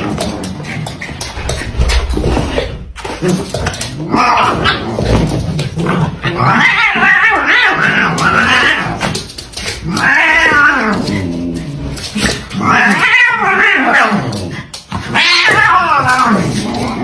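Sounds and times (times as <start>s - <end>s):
cat yowling: 15.1s - 16.4s.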